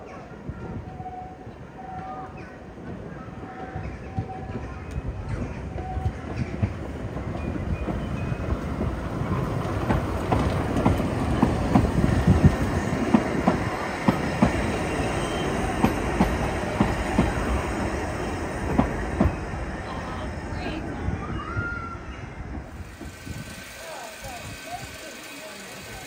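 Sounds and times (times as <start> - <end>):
train carriages rumbling: 0.0 - 26.0
wheels clicking over rail joints: 3.7 - 19.8, 22.6 - 26.0.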